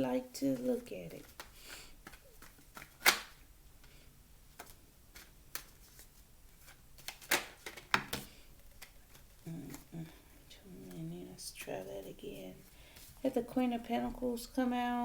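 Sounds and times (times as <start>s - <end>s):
cards being shuffled by hand: 0.4s - 10.0s
card snaps and clicks: 1.3s - 3.4s, 7.0s - 9.2s.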